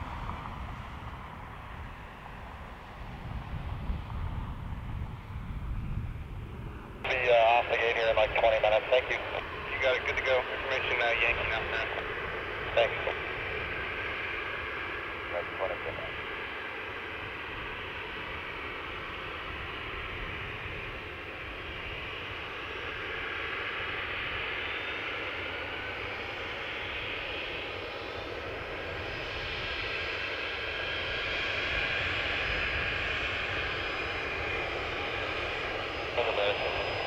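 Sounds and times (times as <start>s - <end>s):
aircraft engines running: 0.0s - 37.0s.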